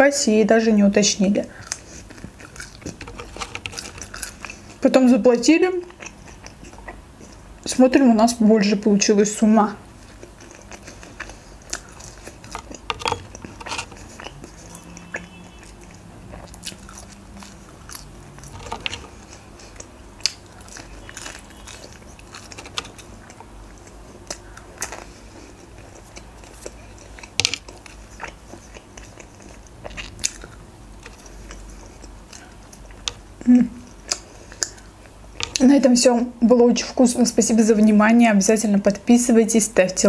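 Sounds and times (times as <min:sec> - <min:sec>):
person chewing fries: 0:01.5 - 0:04.9, 0:05.8 - 0:07.7, 0:09.8 - 0:35.6.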